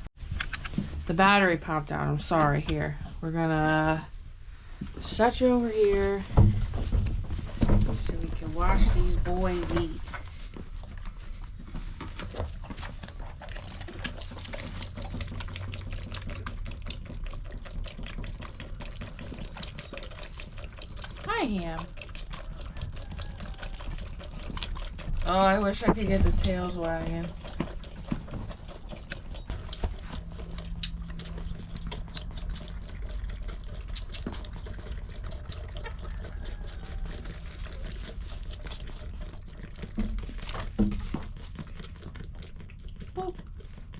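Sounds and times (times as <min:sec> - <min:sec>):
animals sucking milk from bottles: 0:03.9 - 0:43.9
steady low hum: 0:28.6 - 0:35.6.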